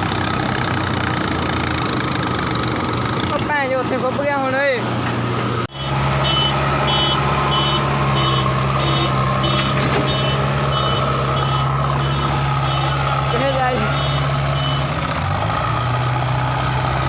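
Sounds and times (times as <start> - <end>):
diesel engine running: 0.0 - 17.0
reversing alarm beeping: 5.7 - 13.2, 13.8 - 14.9.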